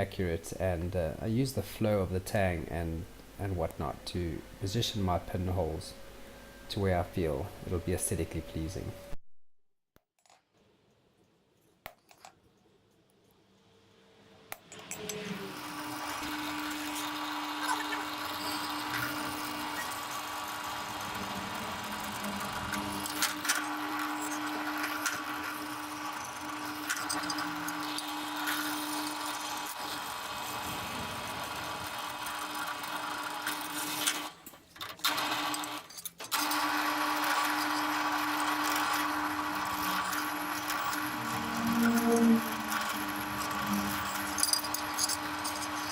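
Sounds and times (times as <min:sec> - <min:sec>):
drill press drilling steel: 0:14.8 - 0:34.3, 0:35.0 - 0:45.9.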